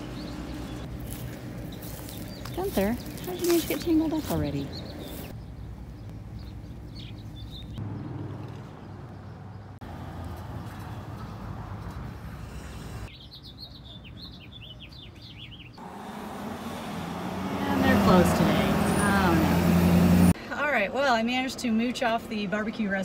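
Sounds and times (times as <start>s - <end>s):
small birds chirping: 0.0s - 9.8s, 12.7s - 16.0s.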